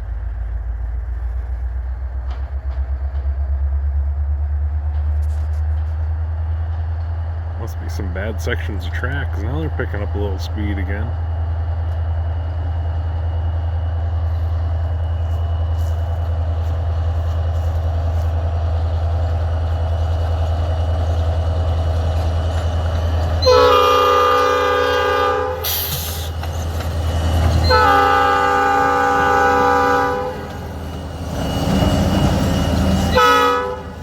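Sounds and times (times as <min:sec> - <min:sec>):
diesel locomotive engine rumble: 0:00.0 - 0:34.0
locomotive horn blast: 0:23.4 - 0:26.3, 0:27.6 - 0:30.7, 0:33.0 - 0:34.0.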